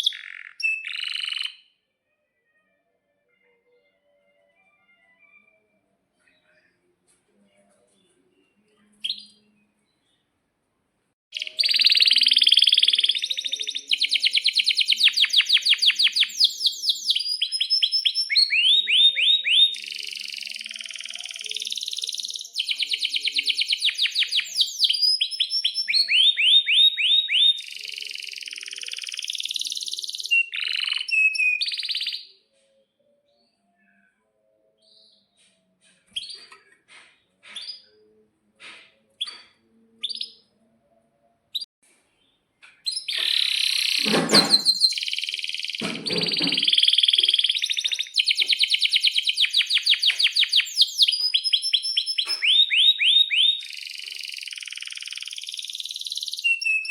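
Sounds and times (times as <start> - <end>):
canary singing trills: 0.0 - 1.7, 11.3 - 32.4, 42.8 - 56.9
faint bird chirps: 0.0 - 1.8, 11.4 - 38.3, 39.0 - 56.9.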